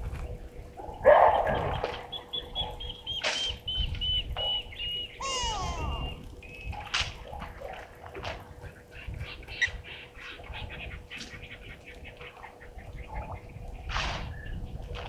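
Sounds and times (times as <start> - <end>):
birds chirping: 0.4 - 6.9
faint electrical hum: 2.0 - 15.0.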